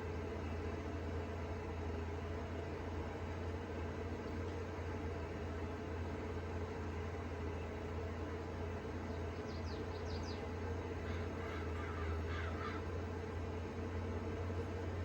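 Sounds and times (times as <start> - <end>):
crop sprayer engine drone: 0.0 - 15.0
bird chirps: 9.2 - 10.5
crow cawing: 11.0 - 13.0.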